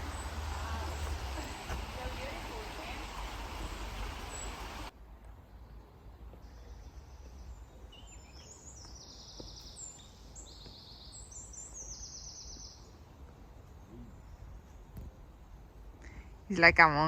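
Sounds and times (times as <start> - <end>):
songbirds trilling: 0.0 - 4.9.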